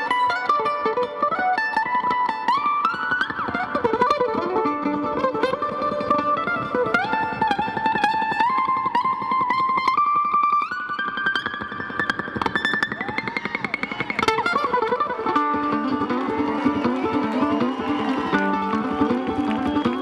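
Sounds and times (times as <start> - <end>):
mandolin melody: 0.0 - 20.0.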